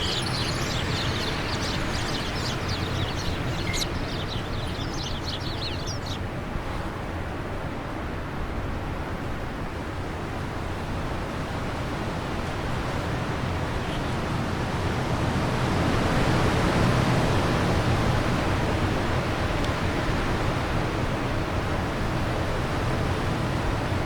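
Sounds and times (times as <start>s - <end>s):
faint bird chirp: 0.0s - 6.2s
wind blowing: 0.0s - 6.7s.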